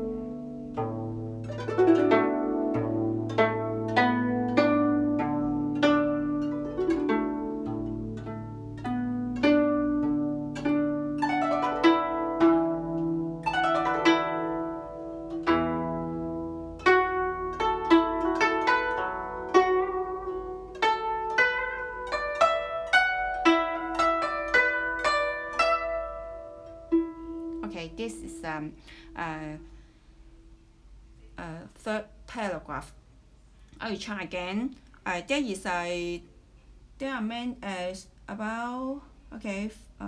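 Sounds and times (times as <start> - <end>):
plucked zither melody: 0.0 - 29.7.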